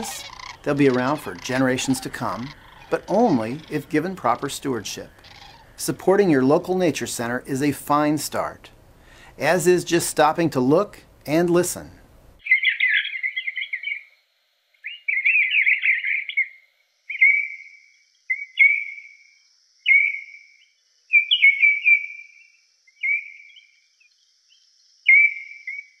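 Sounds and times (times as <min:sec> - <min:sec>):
birds chattering and whistling: 0:00.0 - 0:06.5, 0:12.4 - 0:14.1, 0:14.8 - 0:17.7, 0:21.1 - 0:23.8, 0:25.1 - 0:26.0.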